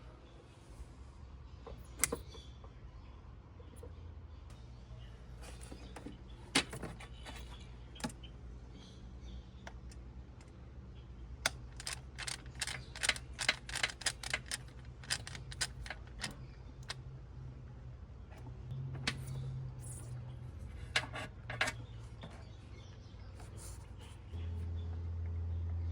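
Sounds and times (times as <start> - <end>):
low steady hum: 0.0 - 25.9
hand tools clicking and clinking: 11.7 - 16.4.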